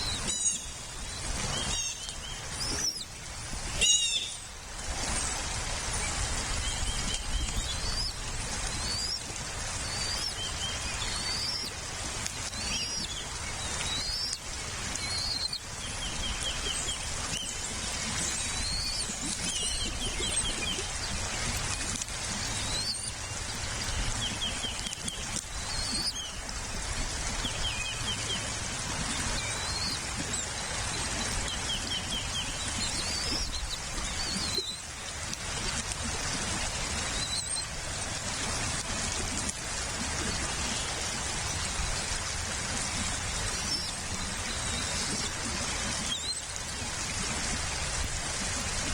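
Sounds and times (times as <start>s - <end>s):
bird chirping and trilling: 0.0s - 0.8s, 1.5s - 3.1s, 3.7s - 4.4s, 6.6s - 9.2s, 9.8s - 11.7s, 12.5s - 14.4s, 15.0s - 17.6s, 18.2s - 20.9s, 22.4s - 26.4s, 29.4s - 34.8s.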